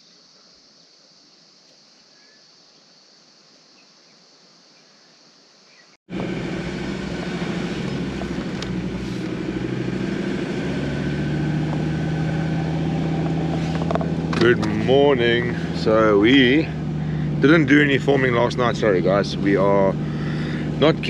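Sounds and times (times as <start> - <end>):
vehicle engine droning: 6.1 - 21.0.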